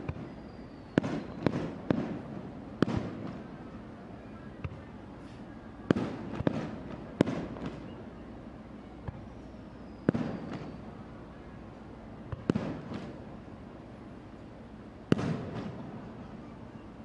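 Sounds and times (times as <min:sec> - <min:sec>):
firework crackle: 0:00.0 - 0:03.6, 0:05.8 - 0:07.9, 0:09.6 - 0:11.1, 0:12.4 - 0:13.4, 0:15.0 - 0:16.4
firework booms: 0:00.9 - 0:03.4, 0:05.9 - 0:07.9, 0:10.1 - 0:10.8, 0:12.3 - 0:13.2, 0:15.1 - 0:16.2.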